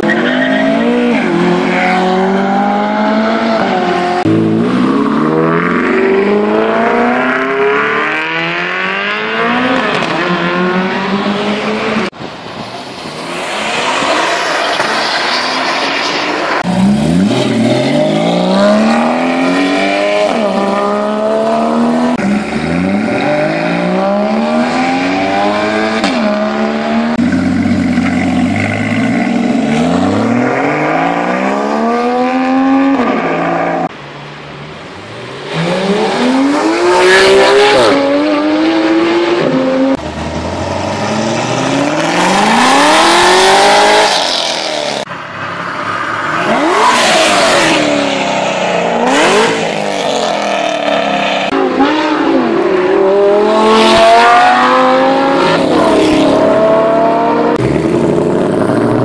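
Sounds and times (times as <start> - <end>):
car engines revving and accelerating: 0.0 - 59.0.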